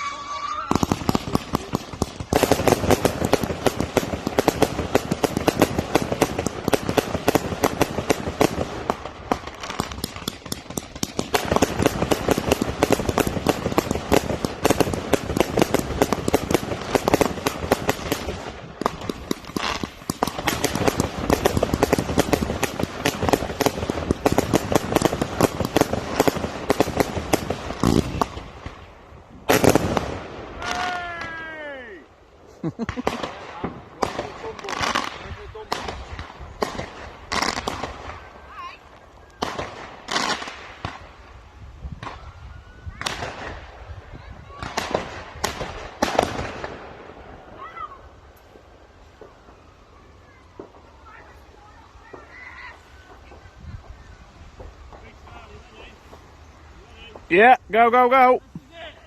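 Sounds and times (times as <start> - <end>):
firework barrage bangs: 0.0 - 31.4, 44.5 - 47.7.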